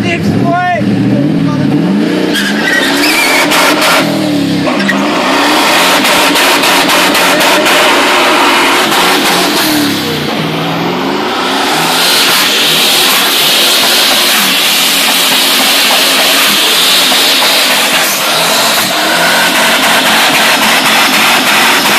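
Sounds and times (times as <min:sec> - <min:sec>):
car engine revving hard: 0:00.0 - 0:21.9
tyres spinning hiss: 0:08.1 - 0:21.9.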